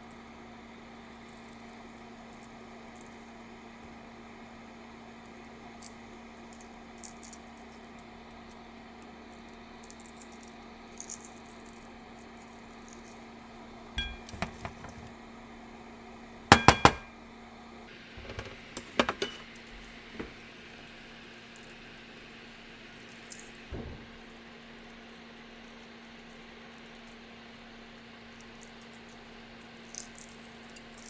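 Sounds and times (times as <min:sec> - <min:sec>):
sharp ringing clinks: 0:14.0 - 0:14.6
dishes and utensils clattering: 0:14.0 - 0:15.1, 0:16.5 - 0:17.1, 0:18.2 - 0:19.5, 0:20.2 - 0:20.4
steady low hum: 0:14.0 - 0:15.1.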